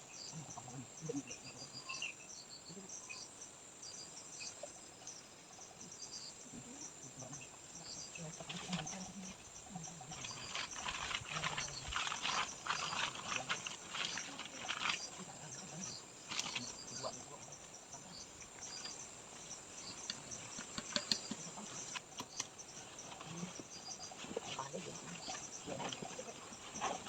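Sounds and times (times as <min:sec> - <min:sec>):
insects chirping: 0:00.0 - 0:27.0
sharp clicks: 0:20.0 - 0:22.6.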